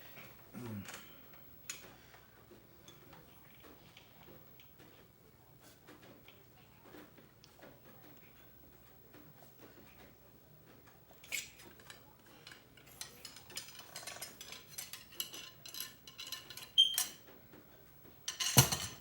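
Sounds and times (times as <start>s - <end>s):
metal scraping and clinking: 11.2s - 17.2s.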